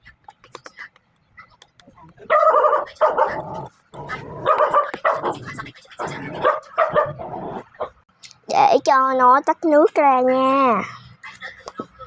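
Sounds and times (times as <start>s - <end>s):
dog barking: 2.3s - 3.6s, 4.3s - 5.5s, 6.3s - 7.9s.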